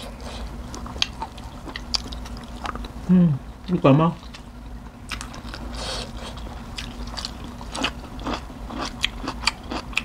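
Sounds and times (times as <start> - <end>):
chewing and crunching: 0.0 - 3.0, 4.2 - 10.0.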